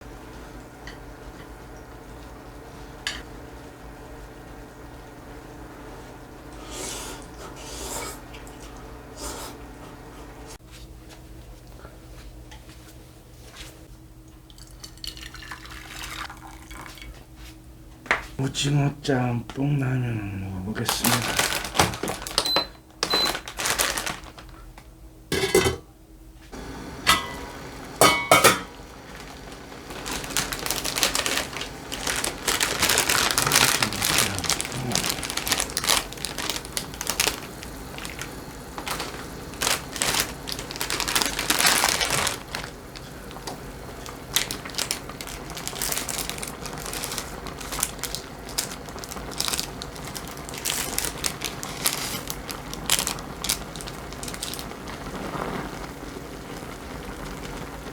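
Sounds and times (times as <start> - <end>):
plastic packaging crinkling: 20.7 - 24.8, 28.3 - 57.7
kitchen things knocking: 25.4 - 25.9, 27.1 - 28.8.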